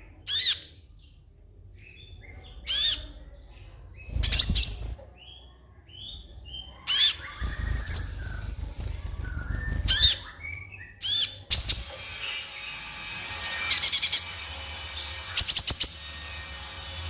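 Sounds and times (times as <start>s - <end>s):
soft low bird twittering: 0.0s - 12.4s
sunbird high chirps: 6.0s - 12.4s.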